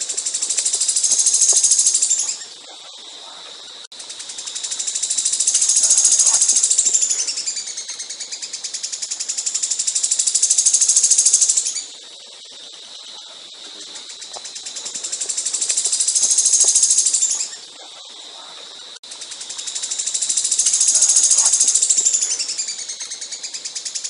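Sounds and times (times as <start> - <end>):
songbird singing rapid trills: 0.0 - 24.0.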